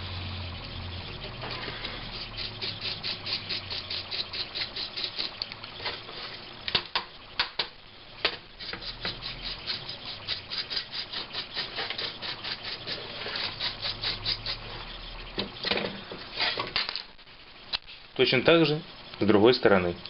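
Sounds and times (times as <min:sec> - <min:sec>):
sanding plastic case: 0:08.6 - 0:15.0.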